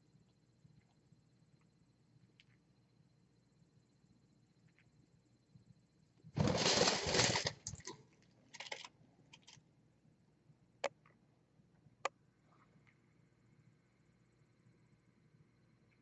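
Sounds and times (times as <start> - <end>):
bird flapping wings: 6.4 - 7.8.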